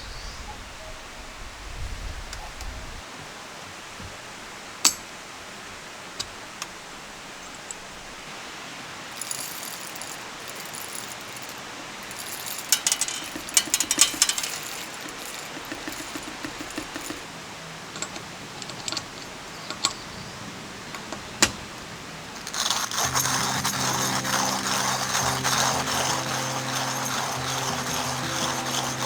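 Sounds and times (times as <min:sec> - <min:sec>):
stream flowing: 0:04.3 - 0:18.1
small hard objects clinking: 0:09.1 - 0:17.3, 0:22.4 - 0:29.0.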